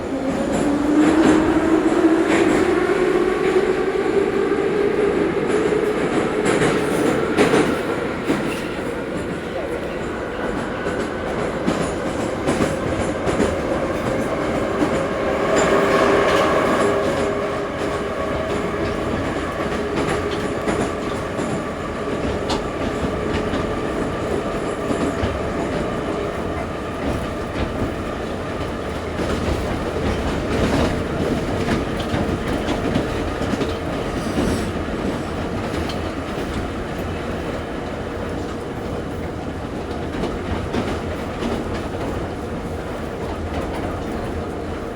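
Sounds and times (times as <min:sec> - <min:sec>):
metro train wheels rumbling: 0:00.0 - 0:44.9.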